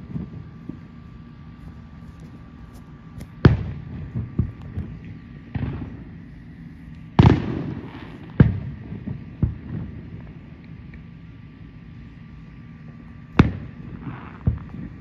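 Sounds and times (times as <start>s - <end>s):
fireworks booming: 3.3s - 6.2s, 7.1s - 10.6s, 13.3s - 15.0s.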